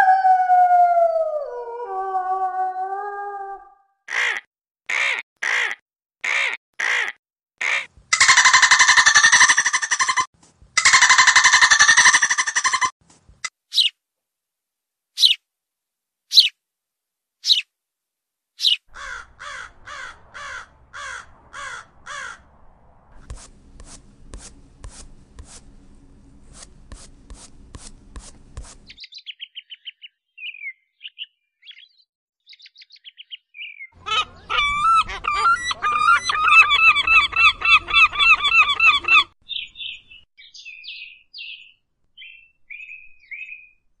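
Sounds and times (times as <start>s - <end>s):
songbirds calling and singing: 15.2s - 15.4s, 16.3s - 16.5s, 17.4s - 17.6s, 28.9s - 43.9s.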